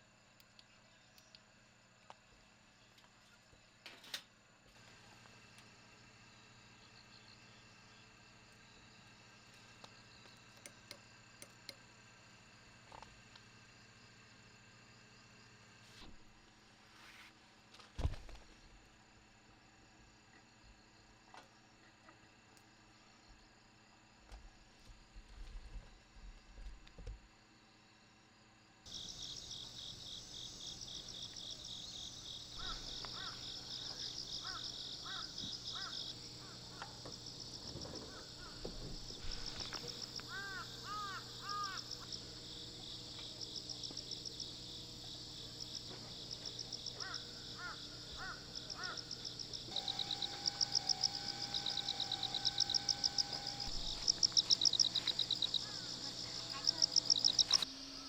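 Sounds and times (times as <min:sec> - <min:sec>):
insects chirping chorus: 0:04.8 - 0:11.8, 0:28.9 - 0:58.0.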